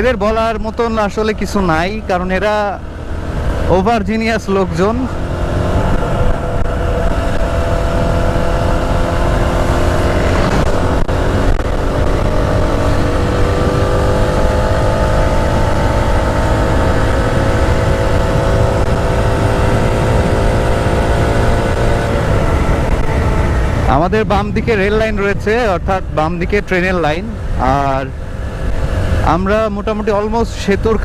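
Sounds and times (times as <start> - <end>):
motorcycle engine cruising: 0.0 - 31.0
wind rumble on microphone: 0.0 - 31.0.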